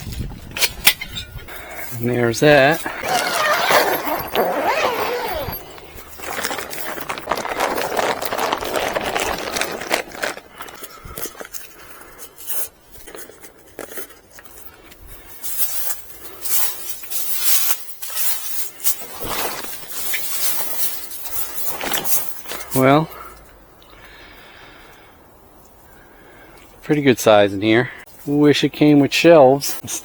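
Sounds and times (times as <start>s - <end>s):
plastic sheet rustling: 2.4s - 11.6s, 15.5s - 22.8s.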